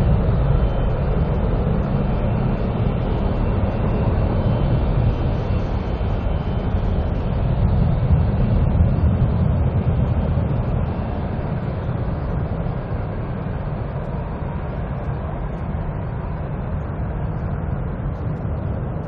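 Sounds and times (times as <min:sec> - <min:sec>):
jet airliner engines rumbling: 0:00.0 - 0:19.0.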